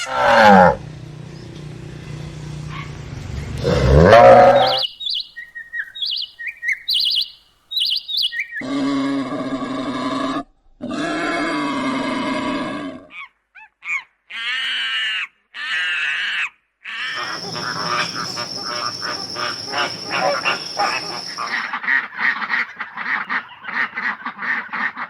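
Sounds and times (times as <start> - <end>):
waterfowl calling: 4.2 - 8.6, 17.0 - 21.8.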